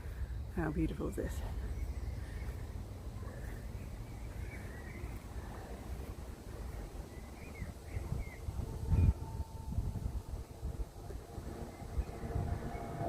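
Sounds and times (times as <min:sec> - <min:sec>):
steady low rumble: 0:00.0 - 0:13.0
faint bird chirps: 0:01.5 - 0:06.0, 0:06.8 - 0:09.5.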